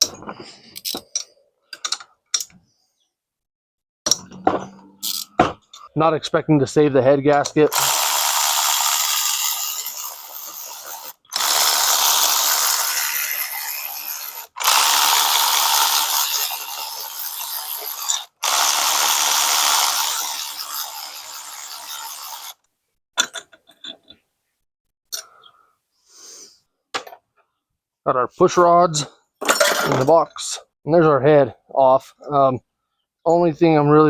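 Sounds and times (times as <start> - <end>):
handheld power tool running: 7.7 - 22.6.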